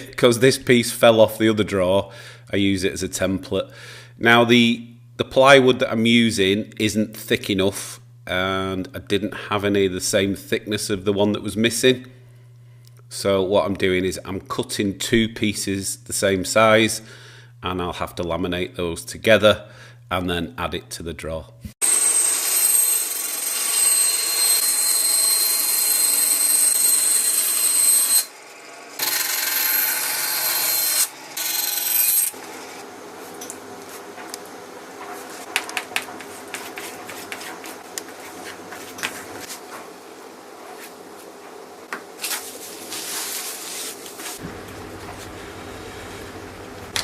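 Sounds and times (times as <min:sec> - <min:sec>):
power saw whining: 0:21.8 - 0:32.8.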